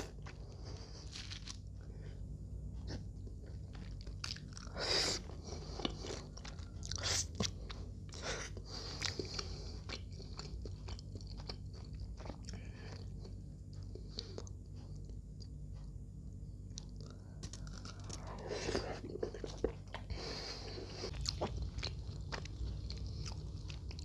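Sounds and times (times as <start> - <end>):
mouth chewing with wet smacks: 5.8 - 15.5, 21.1 - 24.0.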